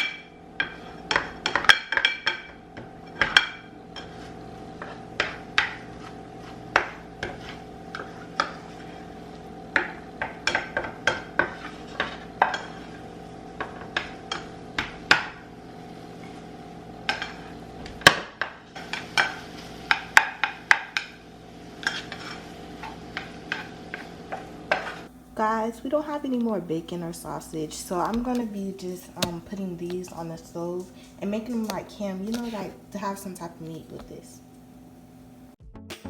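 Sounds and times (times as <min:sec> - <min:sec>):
utensil scraping a frying pan: 0:00.0 - 0:14.5, 0:21.7 - 0:26.1, 0:27.9 - 0:34.2
steady low hum: 0:21.5 - 0:35.6.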